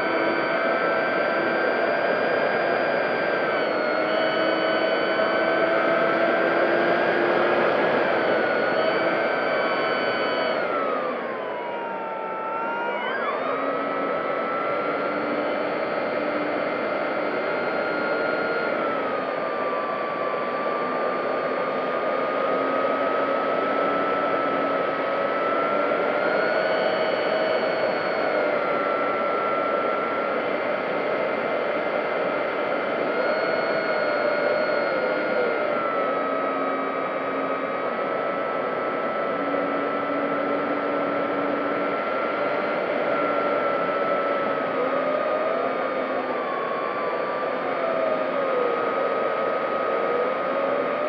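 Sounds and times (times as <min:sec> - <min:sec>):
model plane motor whine: 0:00.0 - 0:51.0.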